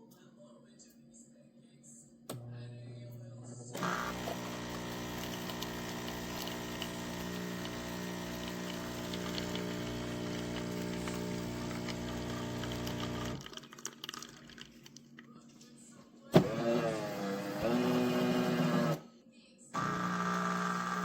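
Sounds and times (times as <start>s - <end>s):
espresso machine humming: 3.8s - 13.4s, 16.4s - 19.0s, 19.8s - 21.0s.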